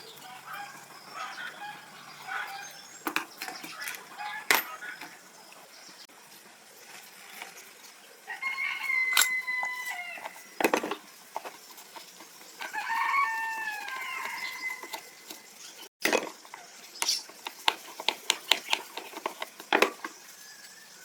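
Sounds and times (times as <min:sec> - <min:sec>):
rooster crowing: 0:00.2 - 0:02.9, 0:04.1 - 0:05.0, 0:08.3 - 0:10.6, 0:12.6 - 0:15.2.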